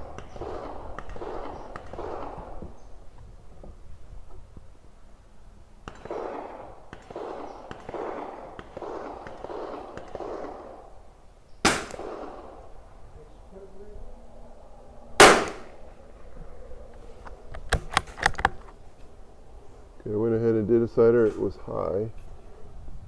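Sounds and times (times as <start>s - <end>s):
rifle shots: 0.0s - 2.6s, 5.8s - 13.0s, 15.2s - 15.8s.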